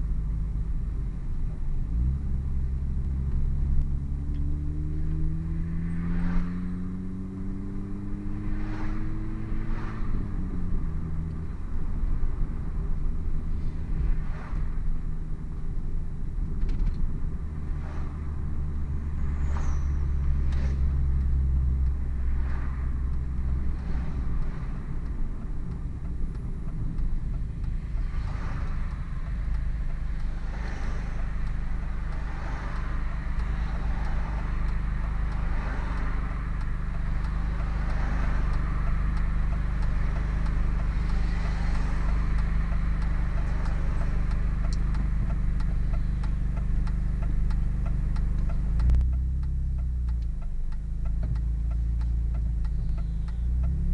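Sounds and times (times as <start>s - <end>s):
car engine droning: 0.0s - 53.9s.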